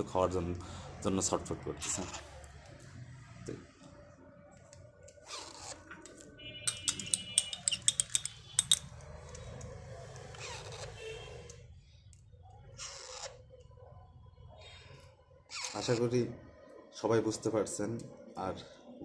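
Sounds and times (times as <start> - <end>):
sharp clicks and taps: 6.7 - 8.9.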